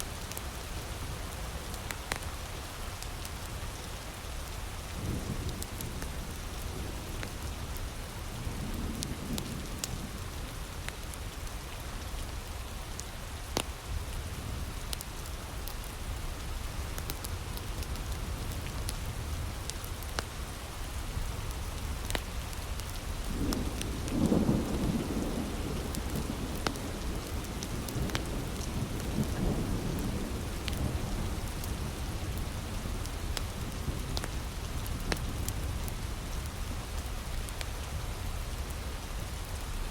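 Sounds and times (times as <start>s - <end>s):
heavy rain: 0.0s - 39.9s
wood fire crackling: 21.5s - 29.4s, 30.0s - 37.8s.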